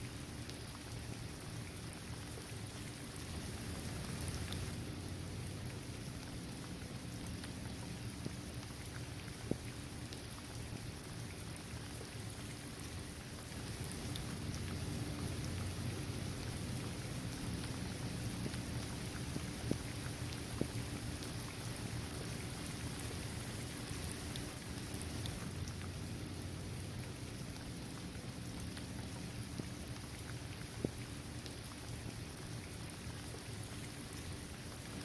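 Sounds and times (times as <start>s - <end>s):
rain falling on court and trees: 0.0s - 35.0s.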